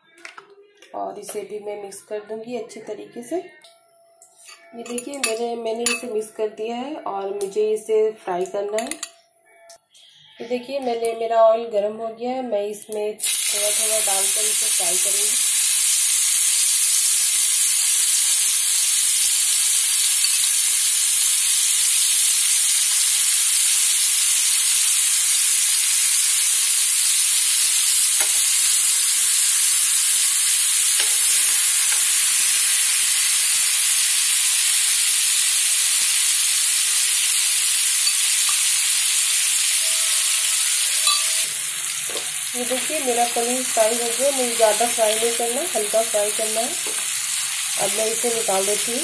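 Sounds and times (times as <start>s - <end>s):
cheese frying in hot oil: 13.2s - 49.0s.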